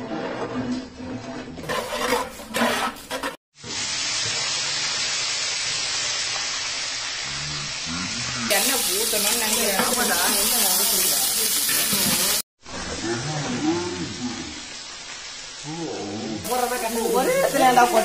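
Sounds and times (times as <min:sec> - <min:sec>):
shallots sizzling in hot oil: 0:03.6 - 0:12.4, 0:14.0 - 0:18.0.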